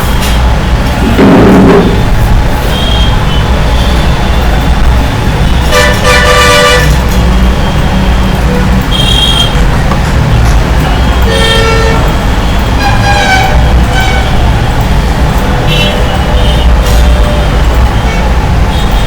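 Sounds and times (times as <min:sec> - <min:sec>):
road traffic rumble: 0:00.0 - 0:19.0
vehicle horns tooting: 0:01.0 - 0:04.2, 0:05.4 - 0:09.9, 0:10.9 - 0:14.6, 0:15.6 - 0:19.0.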